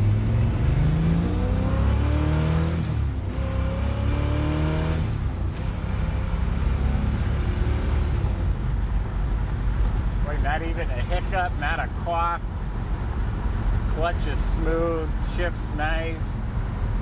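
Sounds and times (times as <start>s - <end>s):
car engine accelerating through gears: 0.0s - 10.2s.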